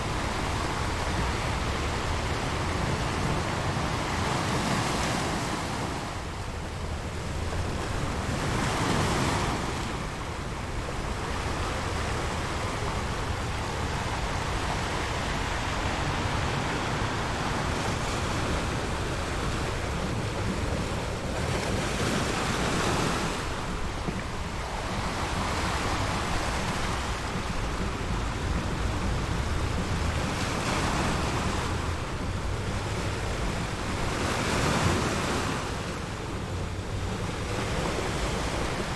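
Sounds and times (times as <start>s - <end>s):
ocean waves washing in: 0.0s - 38.9s
wind: 0.0s - 38.9s.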